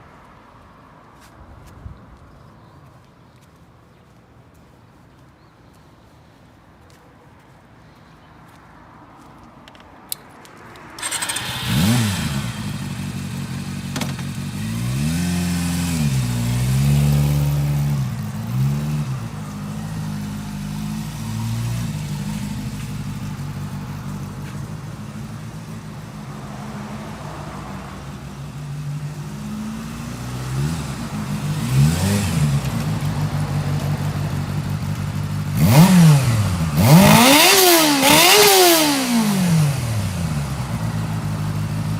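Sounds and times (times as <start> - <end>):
motorcycle engine starting and revving: 10.8 - 41.9.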